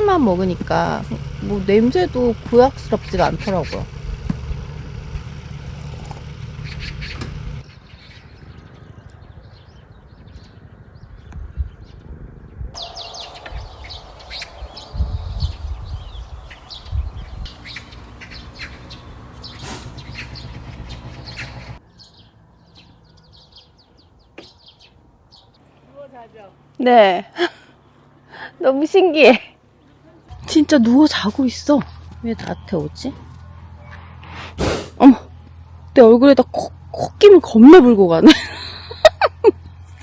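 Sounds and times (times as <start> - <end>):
dull low thumps: 0.0 - 7.6, 12.8 - 21.8
small birds chirping: 0.0 - 11.9, 12.8 - 25.7.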